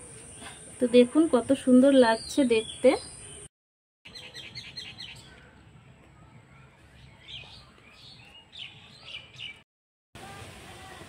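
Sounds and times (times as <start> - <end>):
small birds chirping: 0.0 - 3.5, 4.1 - 9.6.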